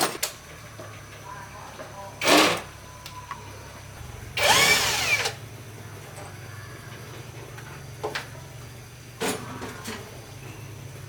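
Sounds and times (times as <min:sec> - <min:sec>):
power tool whirring: 0:04.4 - 0:05.4.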